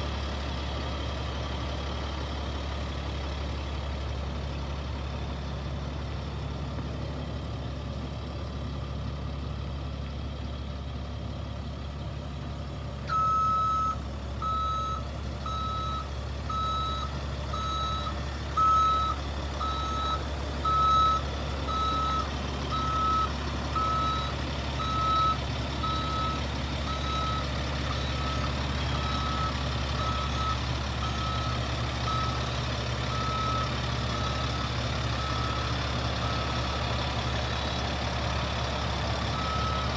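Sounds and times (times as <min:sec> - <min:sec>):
diesel truck engine idling: 0:00.0 - 0:39.9
backup alarm beeping: 0:13.1 - 0:32.4.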